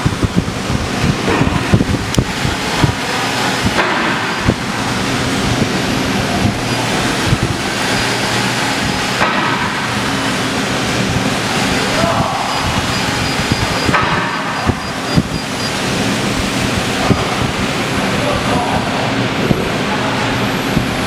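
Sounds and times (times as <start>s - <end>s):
scattered clicks: 12.4s - 16.4s.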